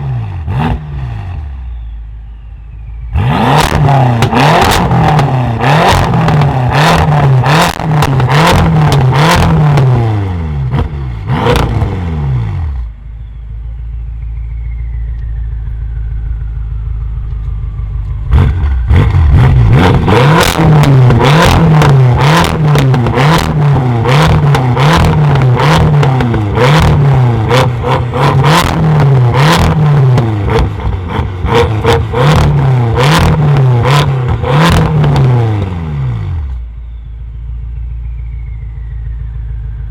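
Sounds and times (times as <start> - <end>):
car engine revving: 0.0 - 1.9, 2.9 - 13.0, 14.2 - 36.6
exhaust pops and crackles: 3.6 - 9.8, 17.1 - 35.8.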